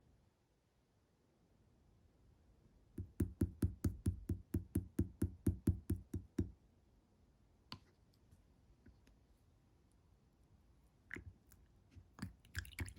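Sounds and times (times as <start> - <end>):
quick tapping on slime: 3.0 - 6.5.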